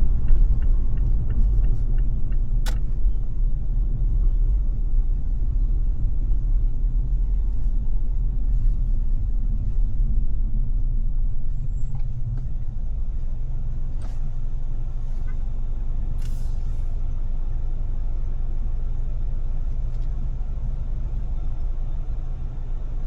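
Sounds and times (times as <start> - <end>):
car engine and road noise: 0.0 - 23.0
sharp click: 2.6 - 3.0, 16.2 - 16.5.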